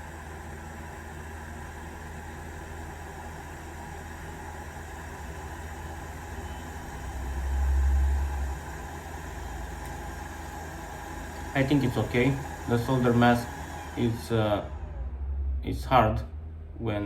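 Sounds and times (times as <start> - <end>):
low hum with faint hiss: 0.0 - 17.0
low rumble: 14.1 - 17.0.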